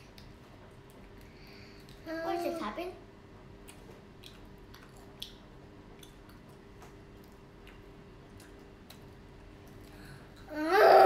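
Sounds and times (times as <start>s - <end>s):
steady low hum: 0.0s - 11.0s
children chewing: 3.6s - 11.0s.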